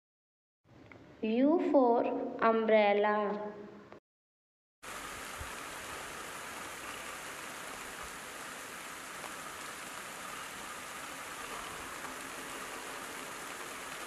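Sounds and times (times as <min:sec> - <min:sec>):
rain on umbrella canopy: 0:04.8 - 0:14.0.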